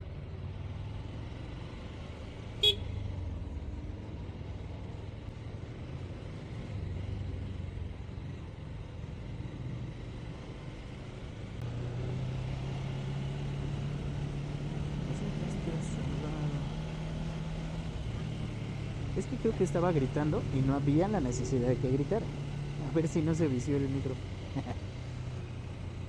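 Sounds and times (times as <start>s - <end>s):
horn toot: 2.6s - 2.9s.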